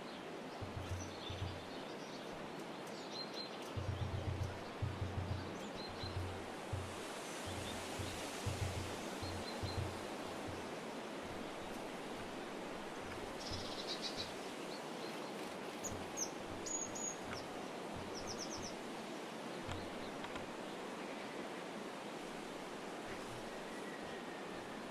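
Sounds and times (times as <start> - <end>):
small birds chirping: 0.0 - 18.8
steady outdoor hiss: 0.0 - 24.9
low bumps: 0.6 - 1.8, 3.8 - 13.6.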